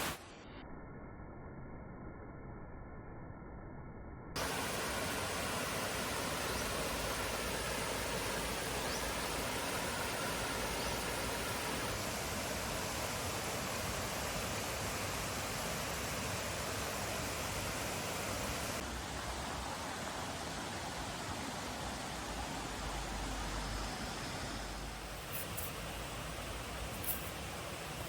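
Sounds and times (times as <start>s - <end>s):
waterfall rushing: 4.4s - 25.2s.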